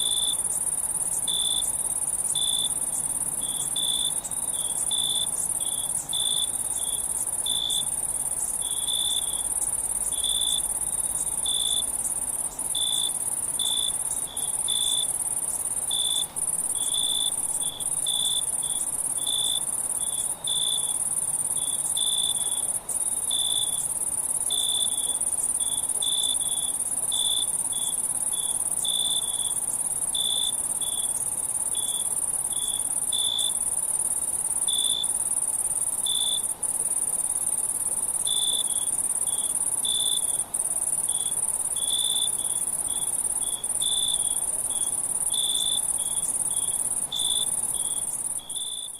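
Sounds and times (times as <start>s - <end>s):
insect high-pitched trill: 0.0s - 48.9s
insect lower chirp: 0.0s - 48.9s.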